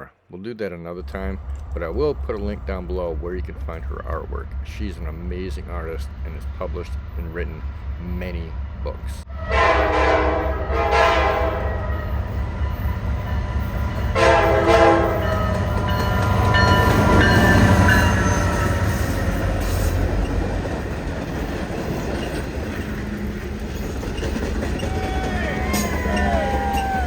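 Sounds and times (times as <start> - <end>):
train rumbling: 0.9 - 27.0
locomotive horn blast: 9.3 - 19.4, 24.8 - 27.0.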